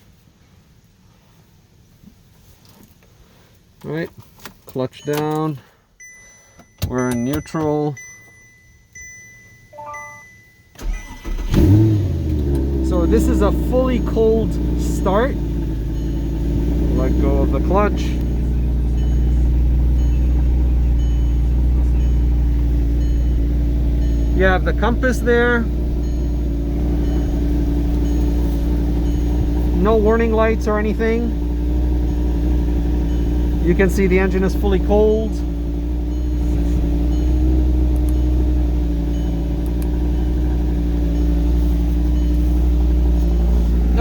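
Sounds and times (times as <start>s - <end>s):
car engine idling: 10.7s - 44.0s.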